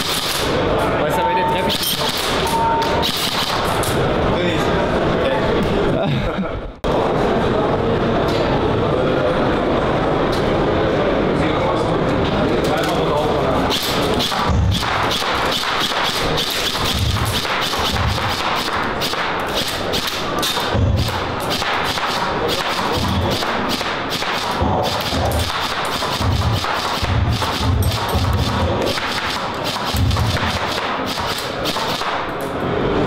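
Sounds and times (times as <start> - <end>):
airsoft guns firing sharp clicks: 14.2 - 32.4.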